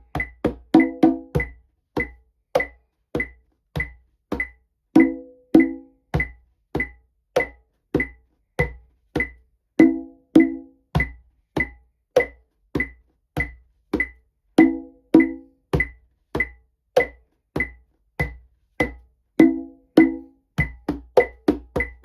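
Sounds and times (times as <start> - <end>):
conga drum rhythm: 0.0 - 22.0
metronome click: 0.2 - 8.2.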